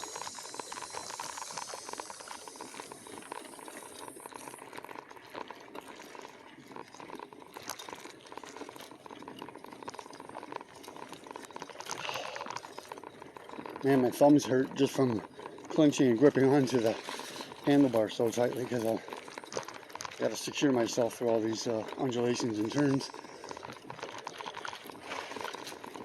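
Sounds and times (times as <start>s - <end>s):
bike clicks and rattles: 0.0s - 26.0s
steady motor hum: 0.0s - 26.0s
tyres crackling on dirt trail: 0.0s - 26.0s.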